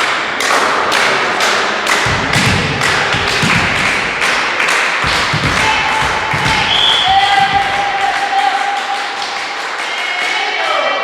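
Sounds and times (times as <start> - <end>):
sharp thuds and taps: 2.0 - 8.2.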